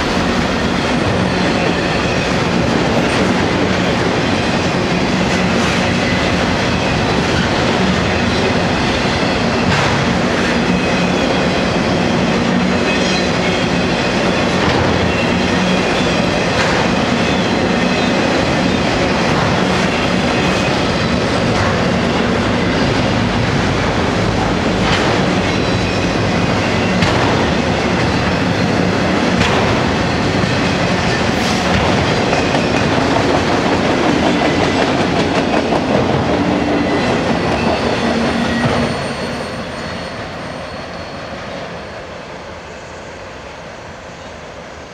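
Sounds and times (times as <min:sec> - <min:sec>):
freight train wheels clattering: 0:00.0 - 0:40.9
sharp clacks of train wheels: 0:00.0 - 0:42.1.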